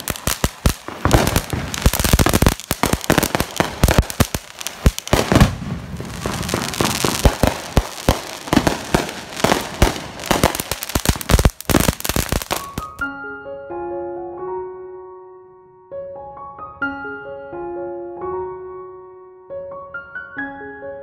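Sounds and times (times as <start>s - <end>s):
fireworks cracking and banging: 0.0s - 13.0s
fireworks hissing: 0.0s - 13.0s.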